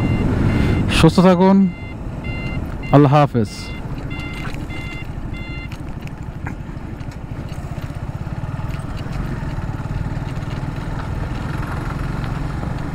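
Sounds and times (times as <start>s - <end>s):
short electronic beeps: 0.0s - 5.8s
motorcycle engine running: 3.7s - 12.9s.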